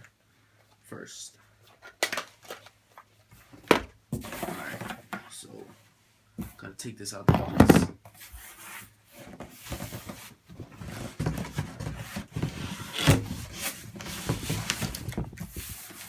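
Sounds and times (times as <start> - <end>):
cardboard scraping and rubbing: 8.1 - 16.0.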